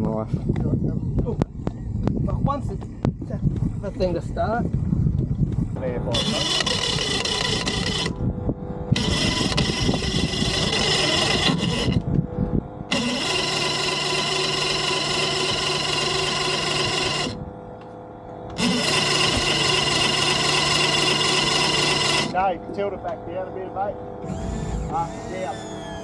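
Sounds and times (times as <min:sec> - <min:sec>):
outboard motor cranking on starter: 0:06.1 - 0:08.2, 0:08.9 - 0:12.0, 0:12.9 - 0:17.4, 0:18.5 - 0:22.4, 0:24.2 - 0:26.0.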